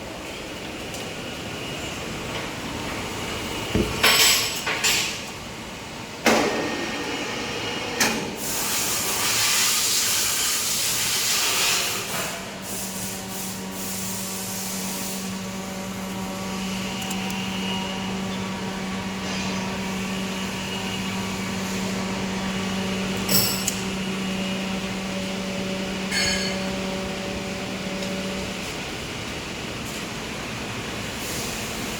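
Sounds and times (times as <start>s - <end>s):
hiss: 8.4s - 15.5s, 31.2s - 31.9s
band saw machine running: 13.0s - 28.7s.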